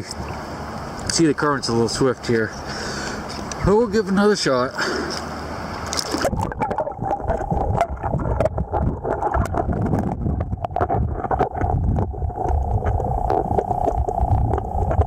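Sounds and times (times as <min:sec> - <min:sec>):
muffled underwater river rush: 0:05.3 - 0:15.0
underwater clicks and knocks: 0:05.8 - 0:15.0.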